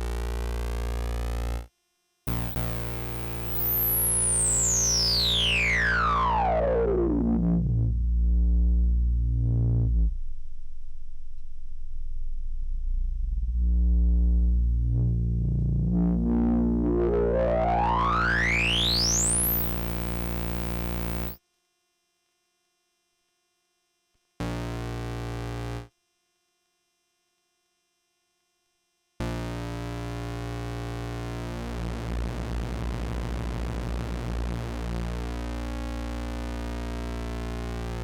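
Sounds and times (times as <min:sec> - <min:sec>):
low synthesizer tone: 0:02.3 - 0:21.4
synthesizer filter sweep: 0:02.3 - 0:21.4.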